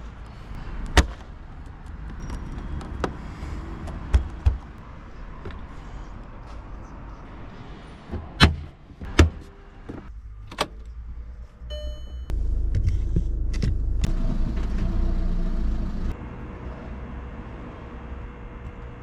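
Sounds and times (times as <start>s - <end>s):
electronic beep: 11.7s - 12.3s
car engine running: 12.3s - 16.4s
car doors shutting: 12.5s - 16.1s.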